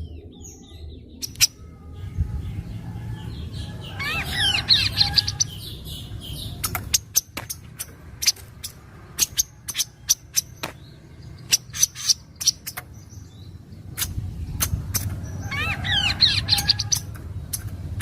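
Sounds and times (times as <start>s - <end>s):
bird song: 0.0s - 18.0s.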